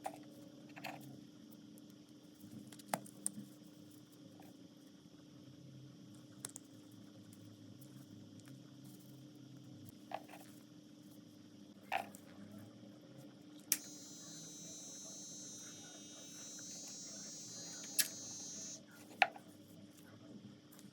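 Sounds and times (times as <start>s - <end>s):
sharp clicks: 13.7s - 18.8s
small motor whining: 13.8s - 18.8s.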